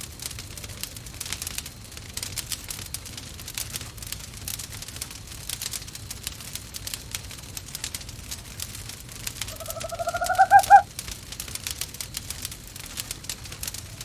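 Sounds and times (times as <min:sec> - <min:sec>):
wood fire crackling: 0:00.0 - 0:14.0
owl calling: 0:09.4 - 0:10.9.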